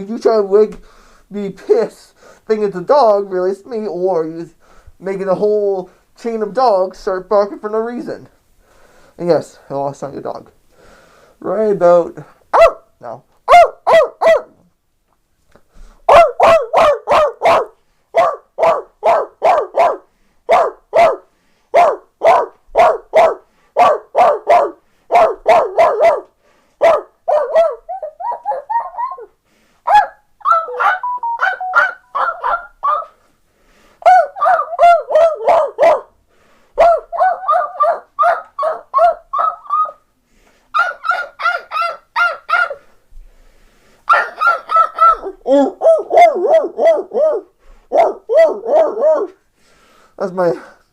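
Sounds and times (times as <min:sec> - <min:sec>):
man imitating dog barks: 0:12.5 - 0:14.6, 0:16.1 - 0:21.2, 0:21.8 - 0:29.3, 0:29.9 - 0:33.2, 0:34.0 - 0:36.1, 0:36.8 - 0:40.0, 0:40.8 - 0:42.8, 0:44.1 - 0:49.4.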